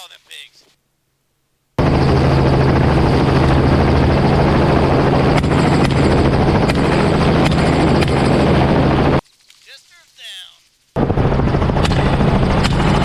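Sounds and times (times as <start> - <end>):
helicopter rotor and engine: 1.8 - 9.2, 11.0 - 13.0
wind rush: 1.8 - 9.2, 11.0 - 13.0.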